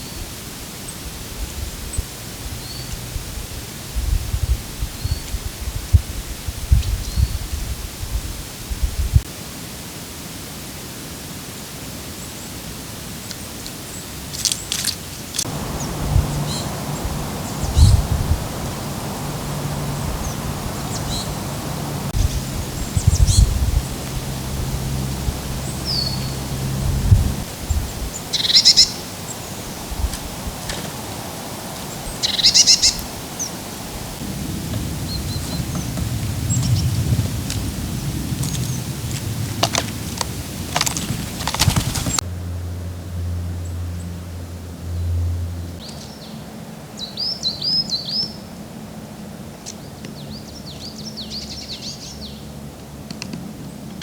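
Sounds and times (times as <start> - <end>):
woodland background hiss: 0.0 - 54.0
crackling rustles: 13.2 - 42.2
birds chattering: 14.6 - 29.9, 31.8 - 42.2
low rumble: 15.4 - 28.2.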